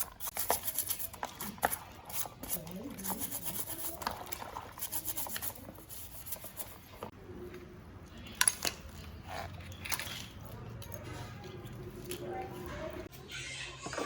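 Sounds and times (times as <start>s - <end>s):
metal parts and hand tools handled: 8.4s - 13.1s.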